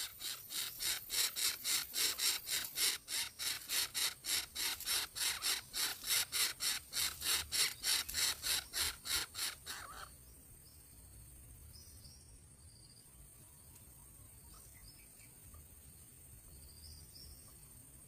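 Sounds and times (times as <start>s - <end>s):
nestling birds begging calls: 0.0s - 10.1s.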